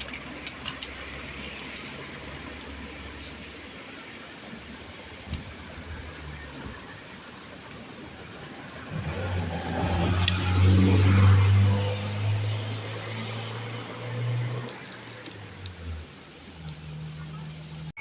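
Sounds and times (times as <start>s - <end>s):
vehicle engine passing by: 8.7s - 17.9s.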